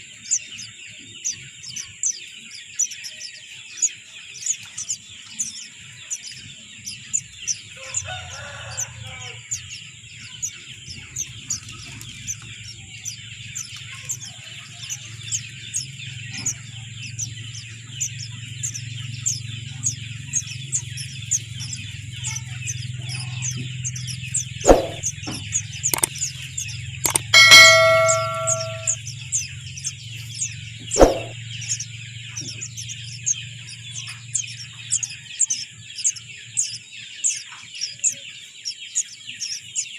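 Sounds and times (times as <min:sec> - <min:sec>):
small birds chirping: 0:00.0 - 0:39.9
sharp knocks: 0:24.7 - 0:25.4, 0:27.1 - 0:29.0, 0:31.0 - 0:31.4
brief ringing tone: 0:27.1 - 0:29.0.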